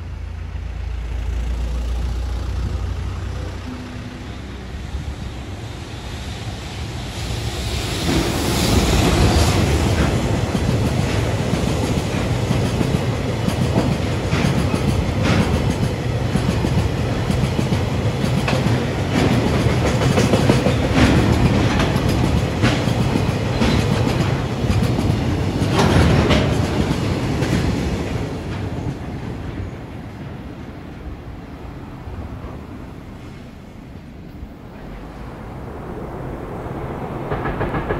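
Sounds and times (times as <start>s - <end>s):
freight train rumble: 0.0s - 37.9s
wheels clacking over rail joints: 9.0s - 30.9s, 36.6s - 37.9s.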